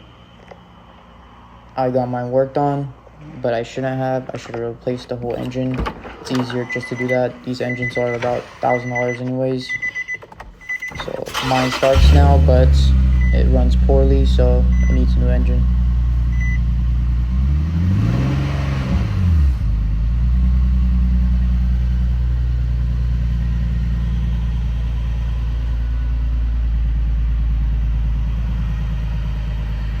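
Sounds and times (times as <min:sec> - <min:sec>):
car engine idling and revving: 0:10.2 - 0:30.0.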